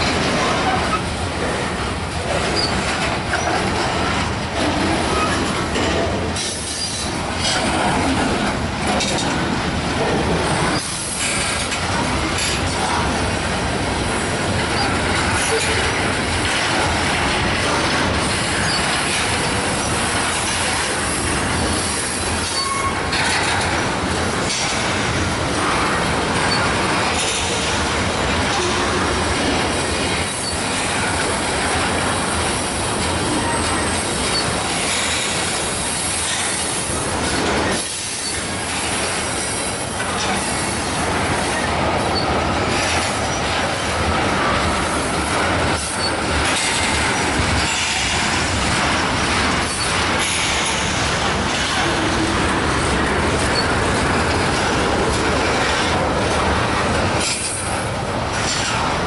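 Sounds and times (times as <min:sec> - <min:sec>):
steel wheels running on rails: 0:00.0 - 0:59.0.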